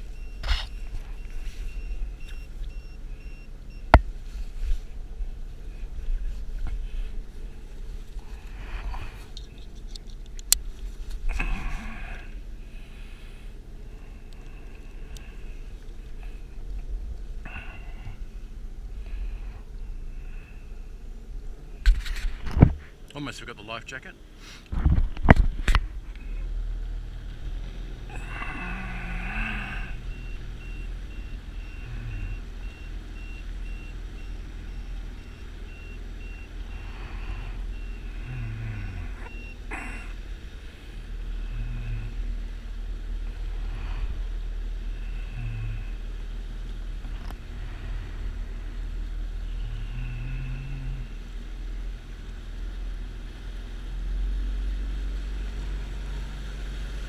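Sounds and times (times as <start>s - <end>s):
vehicle engine running: 0.0s - 57.0s
reversing beeper: 28.2s - 38.2s.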